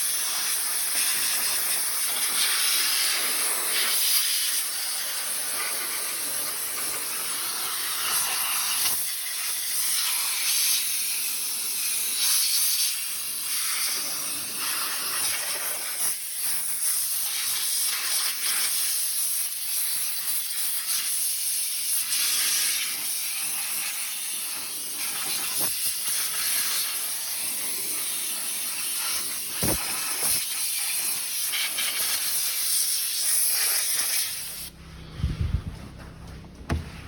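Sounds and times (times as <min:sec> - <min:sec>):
high-pressure spray hissing: 0:00.0 - 0:34.7
low hum: 0:34.6 - 0:37.0
knocks: 0:36.4 - 0:37.0.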